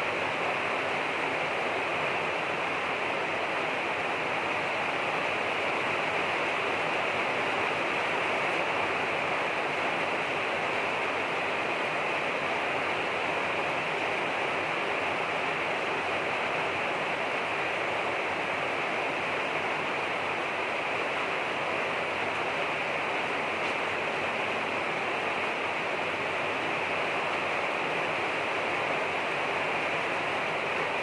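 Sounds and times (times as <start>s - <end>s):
steady rain hiss: 0.0s - 31.0s.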